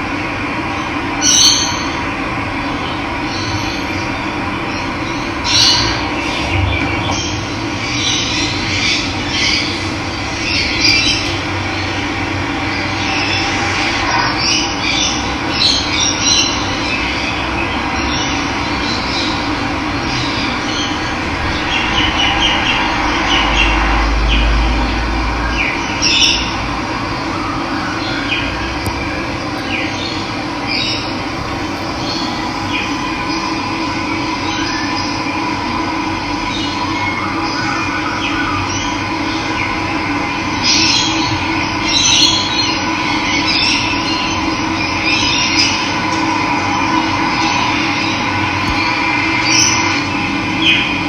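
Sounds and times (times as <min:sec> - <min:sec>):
low rumble: 0:05.3 - 0:14.9, 0:18.6 - 0:27.5, 0:28.6 - 0:36.3
birds chirping and calling: 0:29.6 - 0:33.8.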